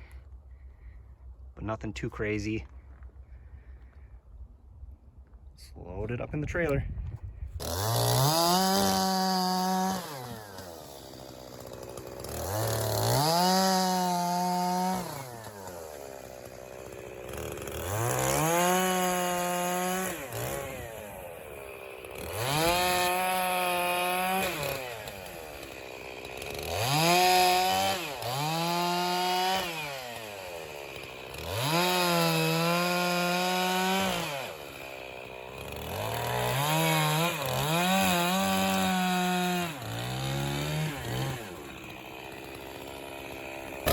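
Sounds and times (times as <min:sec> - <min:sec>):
chainsaw revving and idling: 0:07.6 - 0:43.9.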